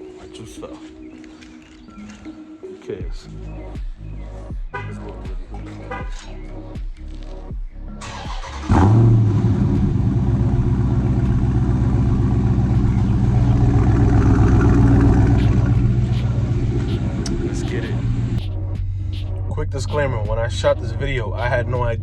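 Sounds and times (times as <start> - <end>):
background music: 0.0 - 22.0
car engine starting and idling: 8.0 - 18.4.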